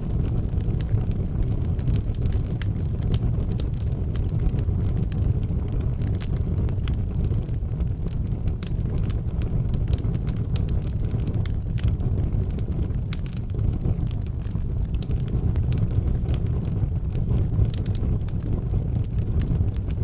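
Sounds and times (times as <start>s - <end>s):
fire crackling and popping: 0.0s - 20.0s
low rumble: 0.0s - 20.0s.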